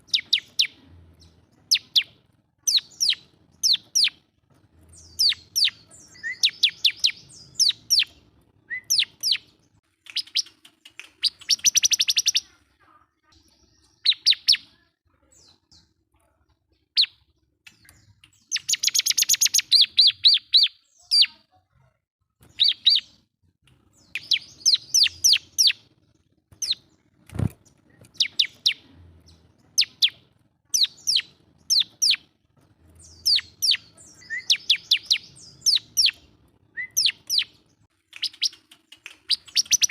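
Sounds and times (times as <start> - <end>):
bird singing high sharp notes: 4.9 - 9.5, 11.3 - 12.5, 33.0 - 39.9.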